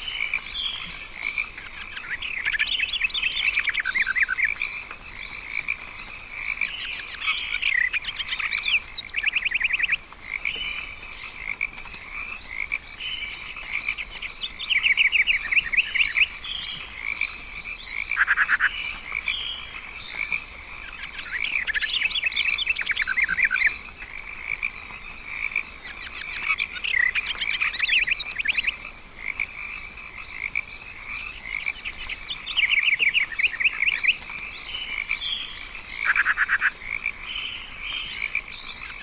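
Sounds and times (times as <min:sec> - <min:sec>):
trilled frog calls: 0:17.0 - 0:39.0.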